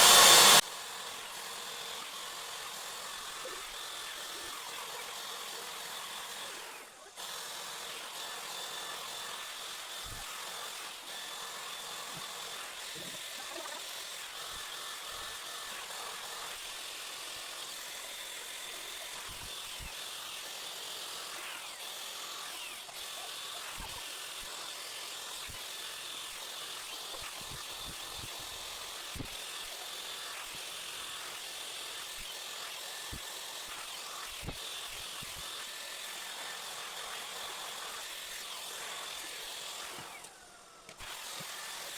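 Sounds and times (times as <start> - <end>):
hair dryer blowing hot air: 0.0 - 0.8.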